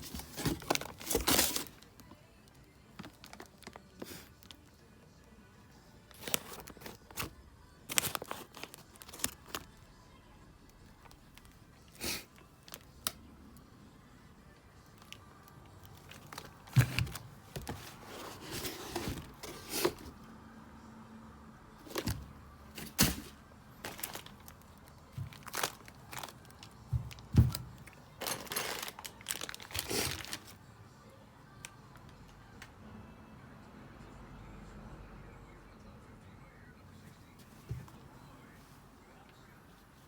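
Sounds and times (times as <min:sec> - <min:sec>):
objects being handled: 0:00.0 - 0:02.2, 0:15.0 - 0:20.2, 0:21.8 - 0:30.5.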